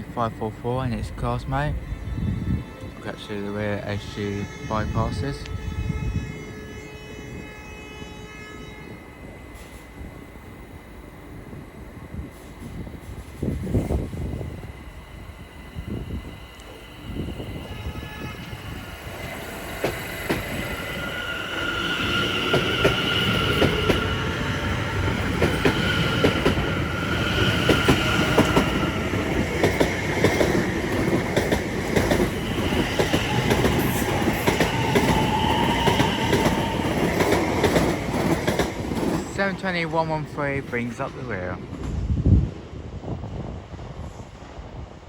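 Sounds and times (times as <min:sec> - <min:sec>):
electric train passing: 0:00.0 - 0:45.0.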